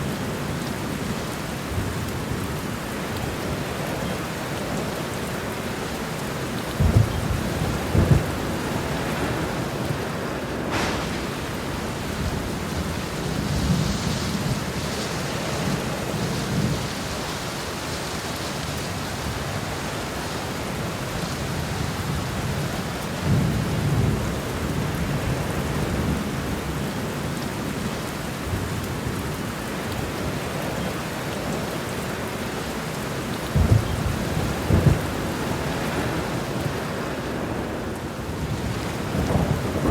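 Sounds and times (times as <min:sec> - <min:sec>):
heavy rain falling: 0:00.0 - 0:39.9
rolling thunder: 0:06.6 - 0:17.0, 0:33.3 - 0:39.9
sharp thunder crack: 0:06.8 - 0:14.3, 0:33.6 - 0:36.2.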